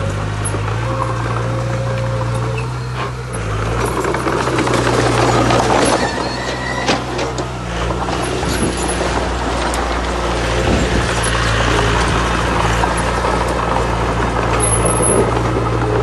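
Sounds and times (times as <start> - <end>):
diesel machinery running: 0.0 - 16.0
clatter of stone and metal: 3.4 - 16.0.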